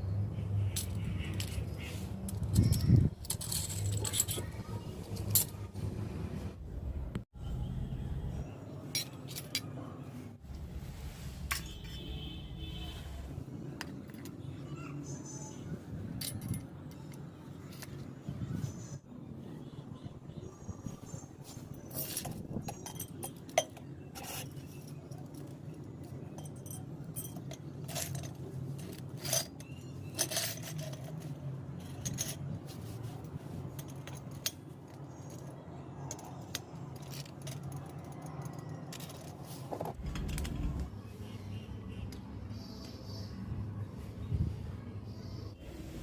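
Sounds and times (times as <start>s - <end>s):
small metal objects clinking: 0.7s - 5.6s, 21.9s - 32.9s, 33.6s - 40.7s.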